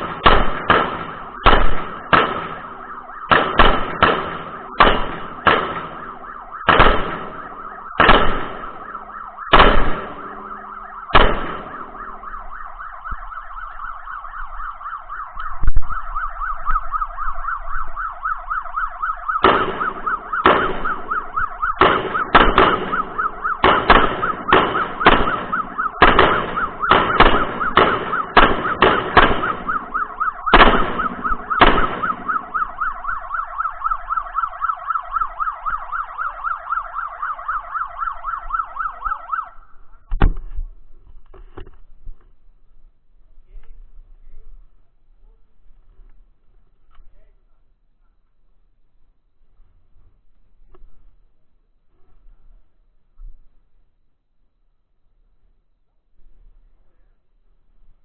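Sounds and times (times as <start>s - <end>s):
gunshots: 0.0s - 12.9s, 19.0s - 34.2s
siren warbling: 1.0s - 39.8s.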